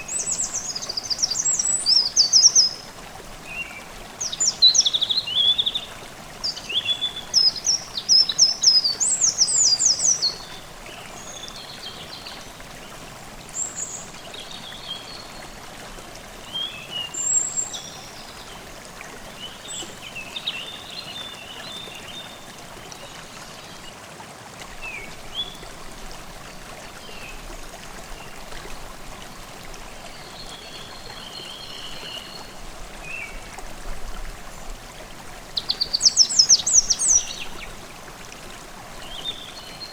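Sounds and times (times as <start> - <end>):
stream running: 0.0 - 39.9
songbirds chirping: 35.4 - 37.9.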